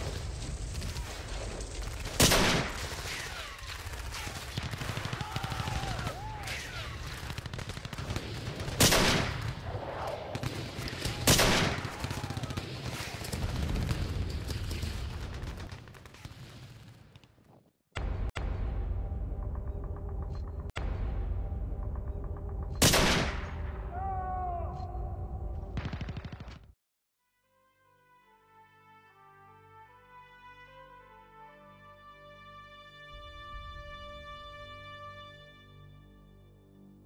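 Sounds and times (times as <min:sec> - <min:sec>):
rapid gunshots: 0:00.0 - 0:17.1, 0:25.8 - 0:26.7
loud single gunshots: 0:02.1 - 0:13.2, 0:22.8 - 0:23.6.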